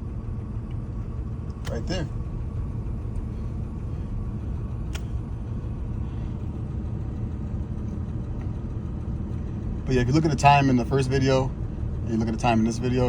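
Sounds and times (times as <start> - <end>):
car engine idling: 0.0 - 13.0
sharp click: 4.9 - 5.2.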